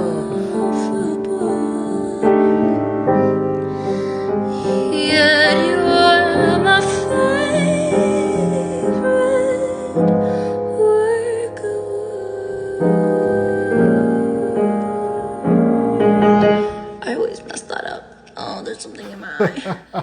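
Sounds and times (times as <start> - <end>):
woman singing: 0.0 - 3.3, 4.6 - 15.6
piano accompaniment: 0.0 - 17.1.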